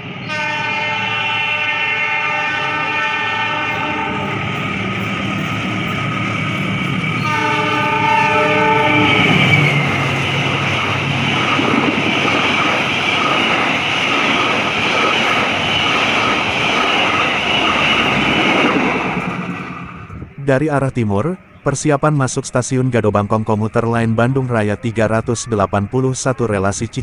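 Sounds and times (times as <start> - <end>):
train horn blast: 0.2 - 4.6, 7.2 - 10.0
wheels clattering on rails: 4.2 - 20.2.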